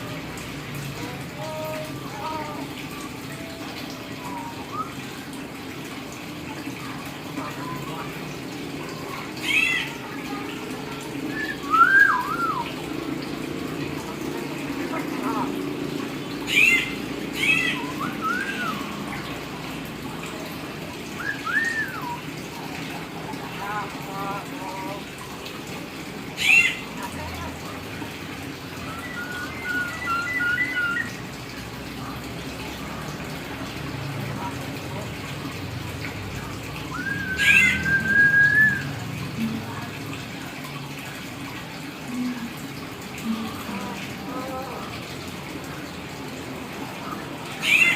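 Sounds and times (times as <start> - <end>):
myna whistle rising and falling: 11.3 - 12.7, 17.8 - 19.0, 21.2 - 22.2, 28.8 - 31.1, 37.0 - 38.9
myna call: 26.4 - 27.5, 36.9 - 38.8.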